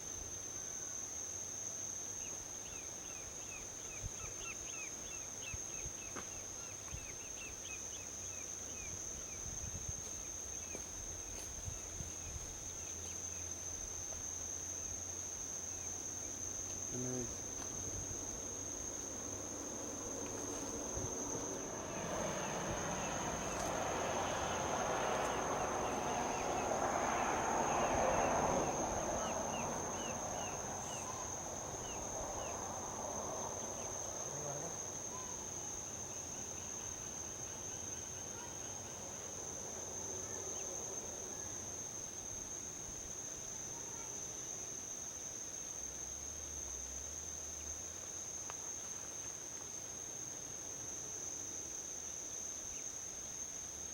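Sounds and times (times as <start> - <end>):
high-pitched insect trill: 0.0 - 53.9
vehicle passing on highway: 17.4 - 37.6.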